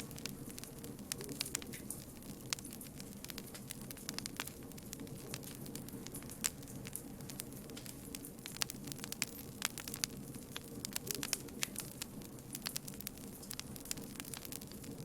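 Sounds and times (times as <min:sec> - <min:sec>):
campfire crackling and popping: 0:00.0 - 0:15.0
low rush of burning: 0:00.0 - 0:15.0.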